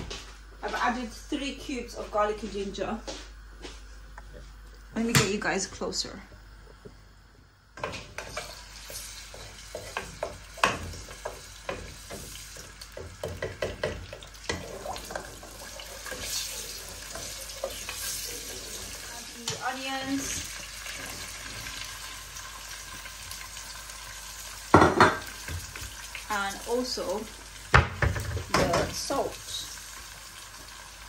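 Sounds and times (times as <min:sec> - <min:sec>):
paste sizzling in hot oil: 0:07.8 - 0:31.0
wooden spatula knocking pan: 0:09.7 - 0:15.5, 0:24.7 - 0:25.7.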